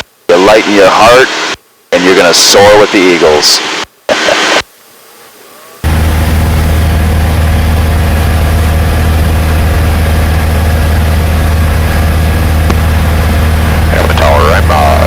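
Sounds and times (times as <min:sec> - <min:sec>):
propeller plane engine droning: 0:05.8 - 0:15.0.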